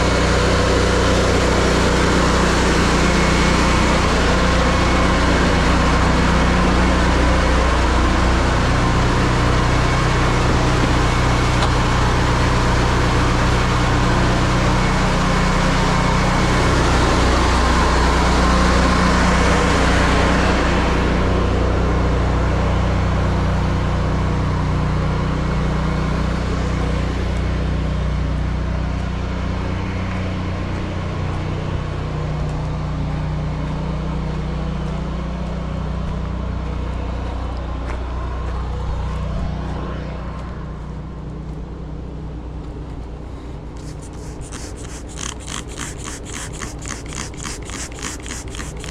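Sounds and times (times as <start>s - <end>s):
pressure washer engine running: 0.0s - 21.1s, 43.8s - 48.9s
high-pressure water spray hiss: 43.8s - 48.9s.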